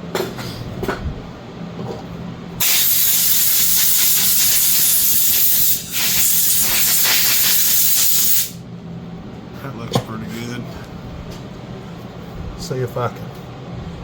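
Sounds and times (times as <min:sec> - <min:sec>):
pressurized gas hissing from nozzle: 0:02.6 - 0:08.6.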